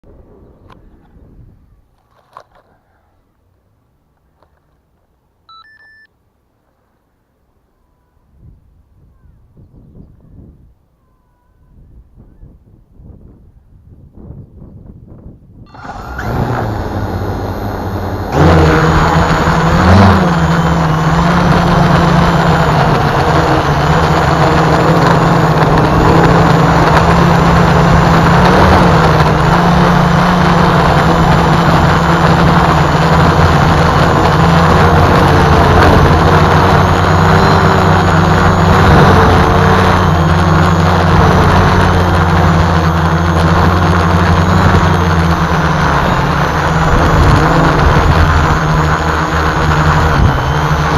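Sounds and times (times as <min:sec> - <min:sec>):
gusty wind: 0:00.0 - 0:02.0, 0:08.2 - 0:50.9
drone motors humming: 0:15.7 - 0:50.9.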